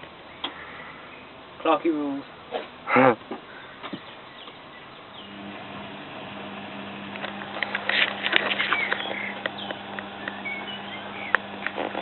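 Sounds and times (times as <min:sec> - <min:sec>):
washing machine humming: 0:05.2 - 0:12.0
clicks and rattles: 0:07.1 - 0:10.4
short squeaks: 0:07.6 - 0:09.8.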